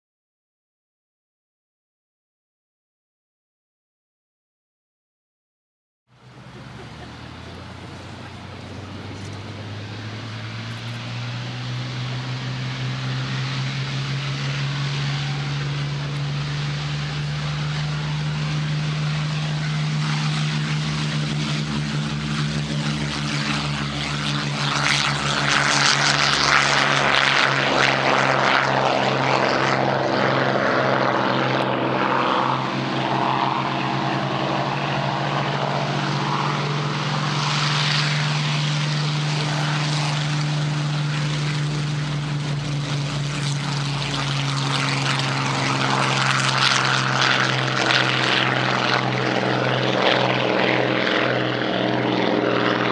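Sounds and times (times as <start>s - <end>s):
propeller plane piston engines: 6.1s - 52.9s.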